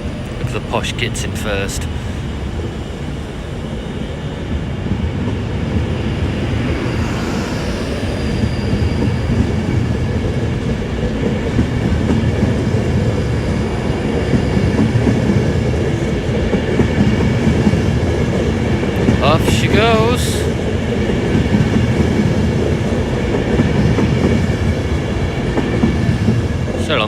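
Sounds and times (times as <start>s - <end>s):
faint high train whine: 0.0s - 27.0s
train wheels clickety-clack: 4.8s - 27.0s.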